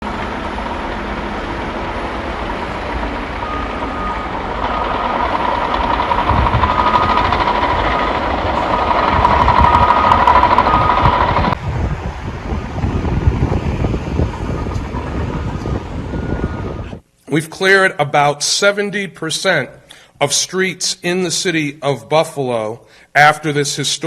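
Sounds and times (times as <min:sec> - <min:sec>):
heavy vehicle rumbling: 0:00.0 - 0:17.0
backup alarm beeping: 0:02.6 - 0:11.6, 0:13.8 - 0:17.0.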